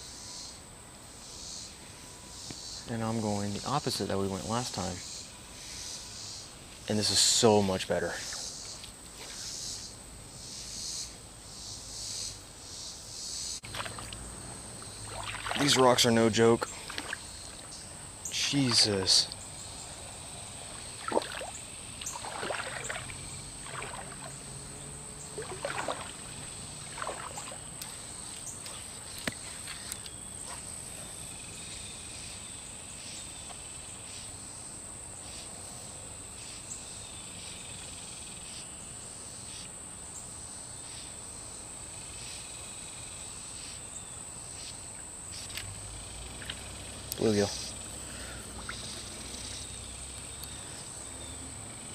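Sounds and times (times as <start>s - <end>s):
creek water splashing: 13.6s - 31.2s, 44.9s - 51.1s.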